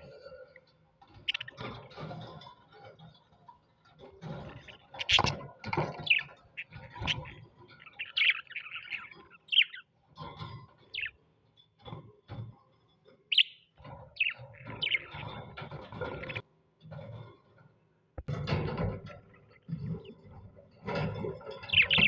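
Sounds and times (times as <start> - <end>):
parrots chirping: 1.2 - 1.7, 4.4 - 11.2, 13.3 - 16.4, 21.6 - 22.0.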